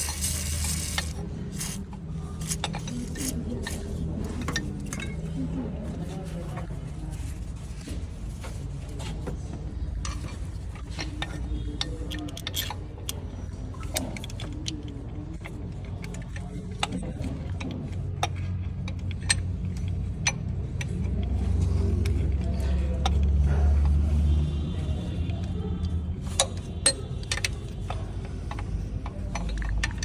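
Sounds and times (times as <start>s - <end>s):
metal clicks and taps: 10.0s - 24.0s, 25.3s - 30.0s.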